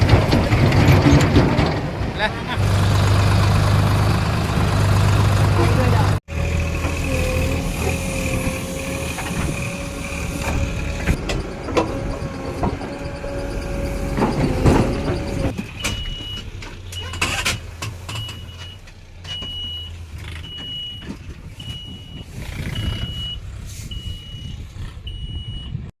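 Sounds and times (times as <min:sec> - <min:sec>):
diesel engine running: 0:00.0 - 0:25.9
whining tone: 0:06.6 - 0:16.2
metal clunks: 0:09.2 - 0:22.2
reversing alarm beeping: 0:09.6 - 0:16.4, 0:18.1 - 0:25.9.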